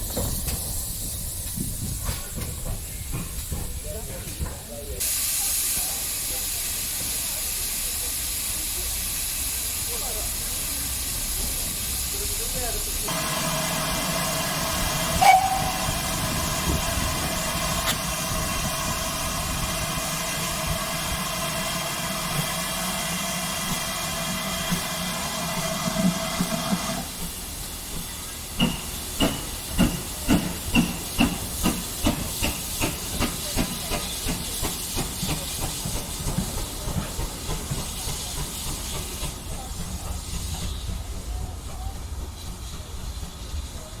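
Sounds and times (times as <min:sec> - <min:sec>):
steam hissing: 0:00.0 - 0:44.0
locomotive exhaust chuffs: 0:13.0 - 0:26.5.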